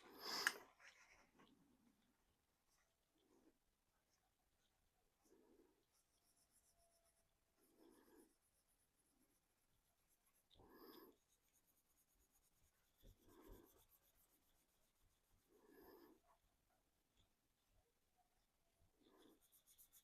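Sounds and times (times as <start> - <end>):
brush scrubbing paint on plastic: 5.8 - 16.3, 19.0 - 20.0.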